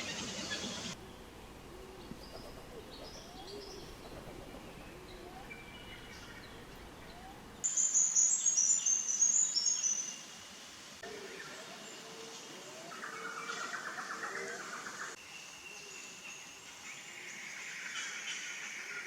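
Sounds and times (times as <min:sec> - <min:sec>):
birds twittering loudly: 0:00.0 - 0:01.3.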